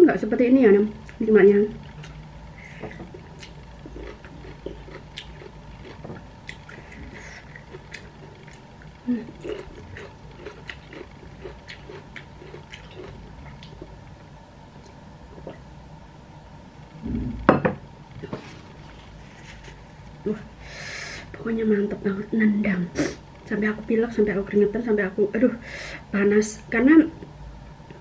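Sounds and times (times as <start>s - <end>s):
person chewing food: 1.8s - 14.2s.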